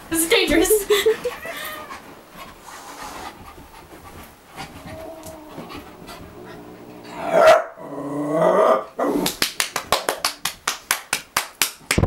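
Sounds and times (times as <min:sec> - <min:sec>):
dog panting: 0:01.0 - 0:07.2.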